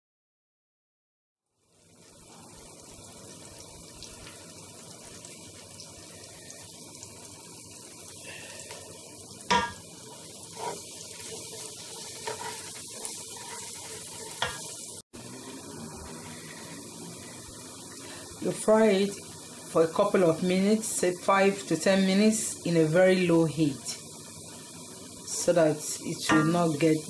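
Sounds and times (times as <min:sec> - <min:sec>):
food sizzling in oil: 0:01.5 - 0:27.0.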